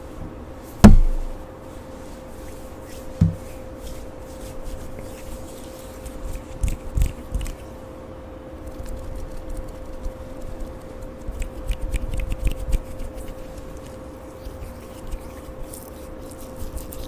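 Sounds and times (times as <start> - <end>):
faint steady hum: 0.0 - 17.0
soft thumps: 0.2 - 1.5, 3.2 - 3.6
soft knock: 0.8 - 1.4, 3.2 - 3.6.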